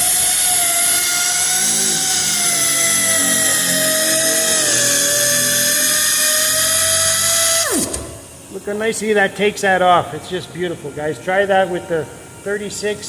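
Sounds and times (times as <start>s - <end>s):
sanding machine whining: 0.0s - 8.8s.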